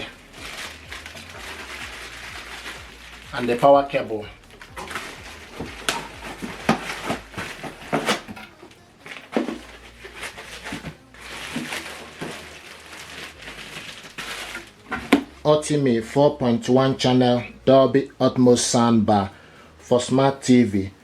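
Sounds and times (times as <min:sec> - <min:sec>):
packaging rustling: 0:00.0 - 0:15.6.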